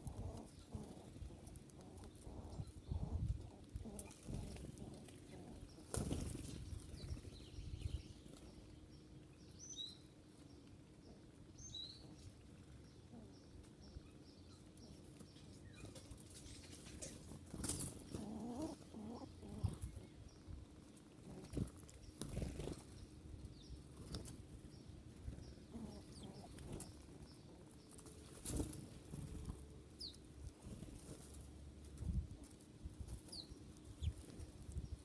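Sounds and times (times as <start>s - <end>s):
wings flapping: 3.9s - 7.3s, 21.3s - 23.0s.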